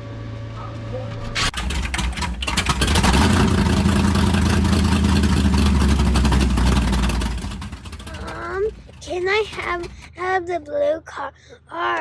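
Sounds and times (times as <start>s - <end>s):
car engine throbbing exhaust: 1.4s - 10.2s.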